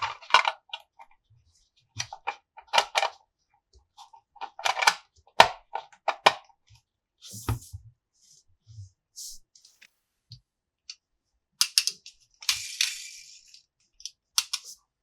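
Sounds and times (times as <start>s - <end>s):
plastic toy parts clicking: 11.6s - 14.8s.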